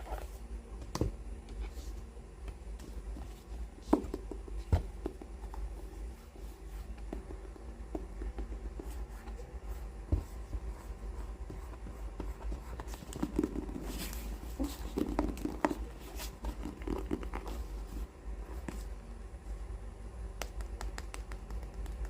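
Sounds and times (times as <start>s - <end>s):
rubbing and rustling of books: 0.0s - 0.5s, 2.7s - 19.0s
taps on book covers: 20.4s - 22.0s.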